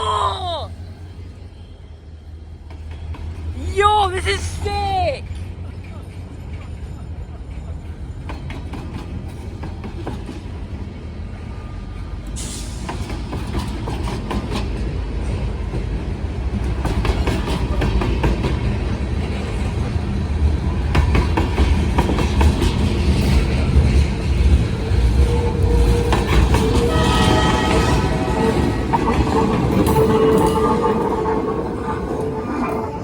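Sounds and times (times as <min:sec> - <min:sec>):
train cars rumbling past: 0:00.1 - 0:33.0
wheels clacking over rail joints: 0:12.4 - 0:33.0.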